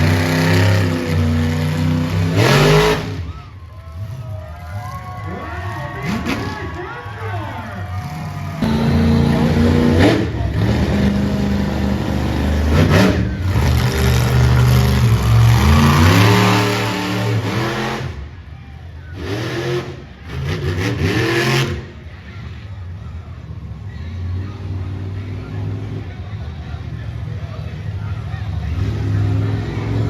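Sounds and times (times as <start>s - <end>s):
monster truck engine revving: 0.0s - 30.0s.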